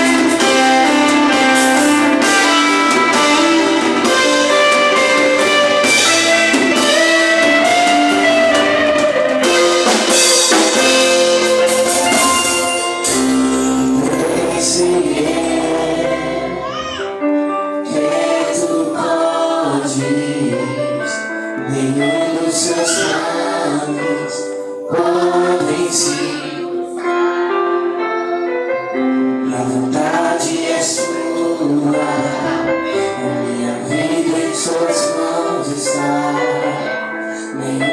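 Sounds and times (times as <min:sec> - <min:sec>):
drums: 0:00.0 - 0:16.9
band playing: 0:00.0 - 0:37.2
singers leading praise song: 0:00.0 - 0:37.9.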